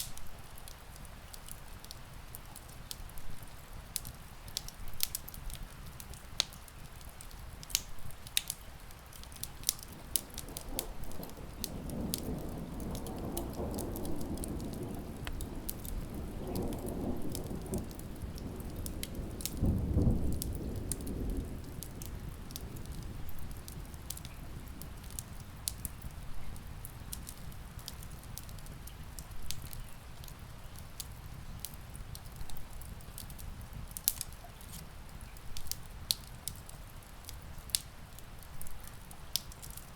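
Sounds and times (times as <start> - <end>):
steady rain: 0.0 - 39.9
wood fire crackling and popping: 0.0 - 39.9
distant thunder rumbling: 10.0 - 24.9.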